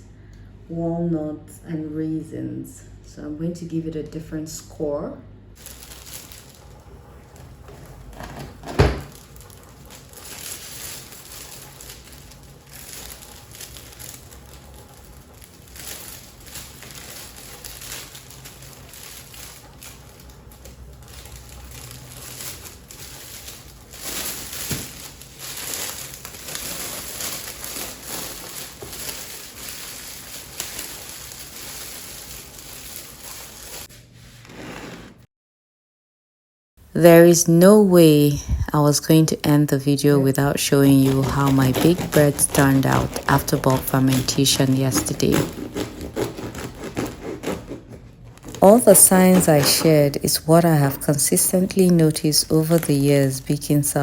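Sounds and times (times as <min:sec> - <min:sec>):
blade scraping bread crust: 0:40.8 - 0:50.2.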